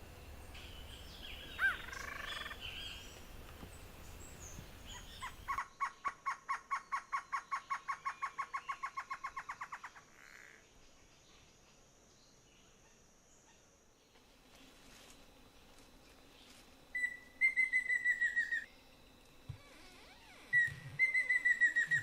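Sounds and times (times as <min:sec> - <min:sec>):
wild birds chirping: 0:00.0 - 0:11.8, 0:15.7 - 0:19.0, 0:19.6 - 0:22.0.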